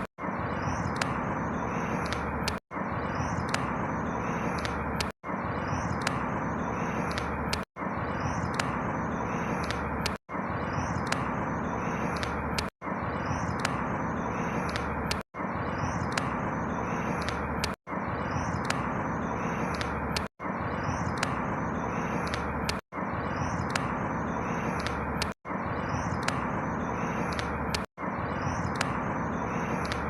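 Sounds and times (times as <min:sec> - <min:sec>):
faint high chirps: 0:00.0 - 0:30.0.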